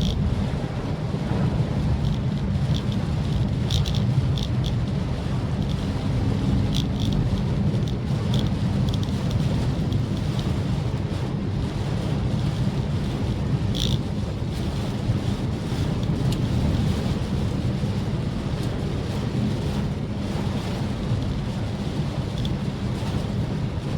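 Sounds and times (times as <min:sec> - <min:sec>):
light ticks: 0:00.0 - 0:00.3, 0:02.0 - 0:05.0, 0:05.6 - 0:05.9, 0:06.6 - 0:10.6, 0:13.7 - 0:14.1, 0:16.0 - 0:16.8, 0:18.6 - 0:18.8, 0:22.3 - 0:23.2
car engine and road rumble: 0:00.0 - 0:23.9.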